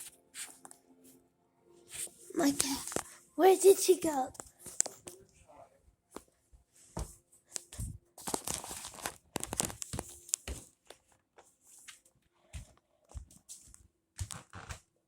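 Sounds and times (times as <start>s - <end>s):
rustling and crinkling: 4.1s - 5.4s, 6.1s - 14.9s.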